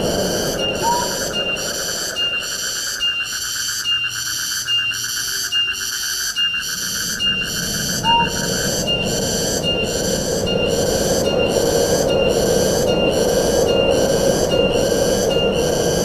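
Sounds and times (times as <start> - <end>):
soft rush of wind: 0.0 - 3.7, 6.5 - 16.0
rhythmic insect chorus: 0.0 - 16.0
short rising whistle: 0.6 - 1.6, 7.2 - 9.1.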